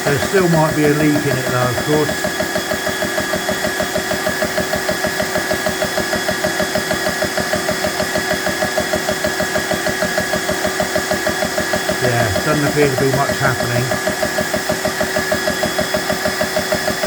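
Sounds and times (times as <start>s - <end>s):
cooling fans humming: 0.0s - 2.4s, 12.0s - 14.3s
air compressor pumping: 0.0s - 13.1s.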